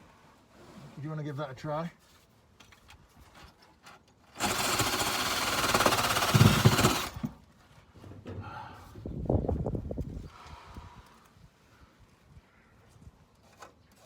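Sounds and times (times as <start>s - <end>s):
electric drill scouring rusty metal: 4.4s - 7.3s.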